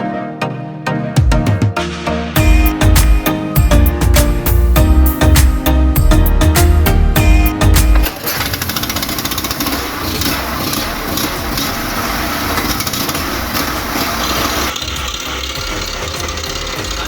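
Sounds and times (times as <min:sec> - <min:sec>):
music: 0:00.0 - 0:08.6, 0:09.6 - 0:17.0
generator engine running: 0:06.4 - 0:17.0.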